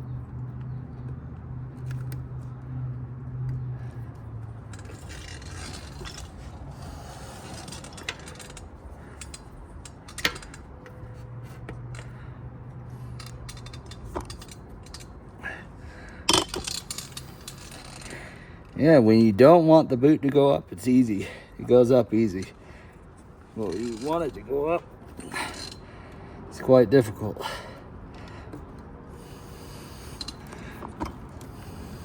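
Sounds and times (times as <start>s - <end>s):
sharp metal clicks and knocks: 3.4s - 12.2s, 12.9s - 15.4s, 16.2s - 18.8s, 23.6s - 25.9s.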